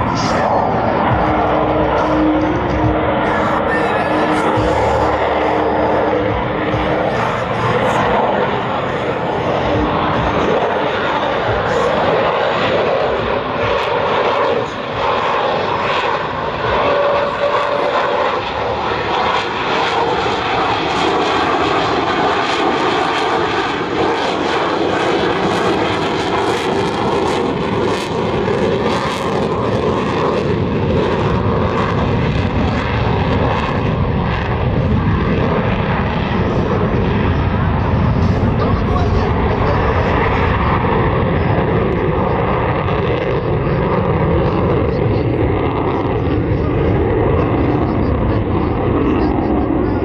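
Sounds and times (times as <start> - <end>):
jet engine rumble: 0.0 - 50.0.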